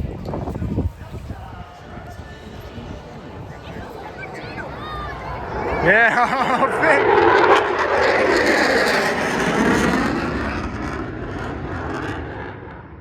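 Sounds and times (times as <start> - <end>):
jet passing in afterburner: 3.5 - 13.0.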